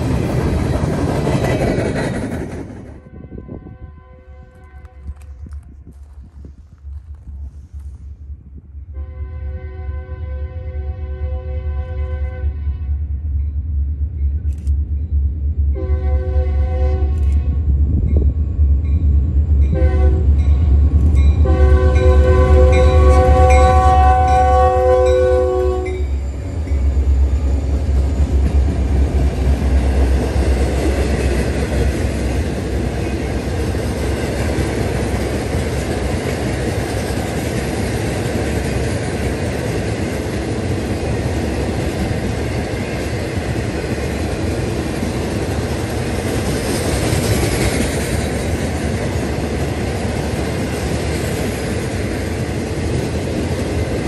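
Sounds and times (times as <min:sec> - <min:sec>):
steel wheels clattering on rails: 0:00.0 - 0:03.0
diesel locomotives rumbling: 0:00.0 - 0:54.0
train horn chord: 0:03.0 - 0:05.4, 0:08.9 - 0:13.1, 0:15.7 - 0:17.6, 0:19.7 - 0:20.4, 0:21.4 - 0:26.2.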